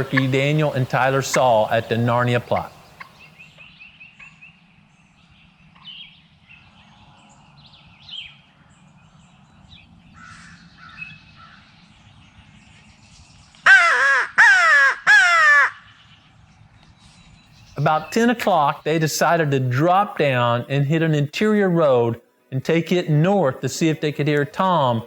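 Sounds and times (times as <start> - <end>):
faint bird chirps: 0.0 - 13.5
crow call caws: 10.2 - 11.6, 13.7 - 15.9.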